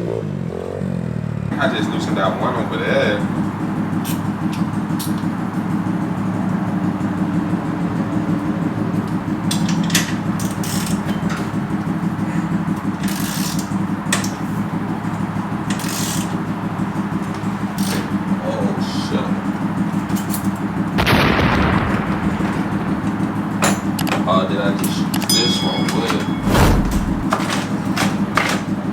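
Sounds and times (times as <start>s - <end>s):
dirt bike engine idling: 0.0s - 28.9s
clicks and knocks of handling: 9.0s - 16.5s, 23.6s - 28.9s.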